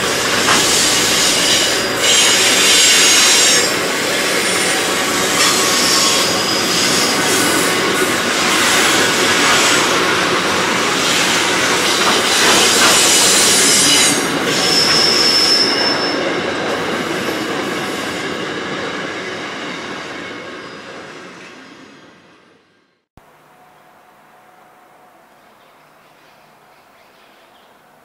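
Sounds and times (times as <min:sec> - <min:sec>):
train wheels rumbling and clacking: 0:00.0 - 0:21.6
high wheel squeal: 0:00.0 - 0:22.3.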